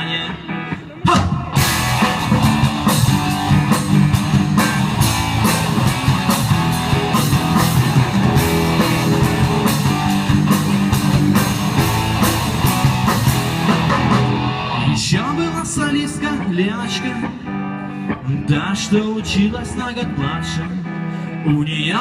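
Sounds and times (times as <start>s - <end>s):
bass guitar: 0.0s - 22.0s
electric guitar: 0.0s - 22.0s
drum kit beat: 0.5s - 16.6s.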